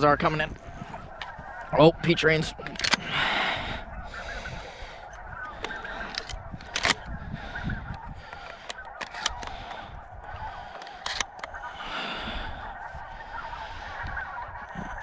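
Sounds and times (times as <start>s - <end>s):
geese honking: 0.0s - 15.0s
sharp clicks: 2.6s - 3.1s, 5.0s - 10.0s, 10.6s - 11.6s.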